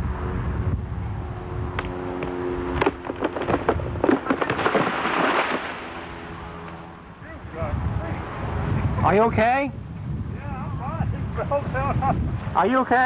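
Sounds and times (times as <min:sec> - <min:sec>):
tree cracking and snapping: 0:01.7 - 0:06.8
tree crashing down: 0:02.2 - 0:06.2.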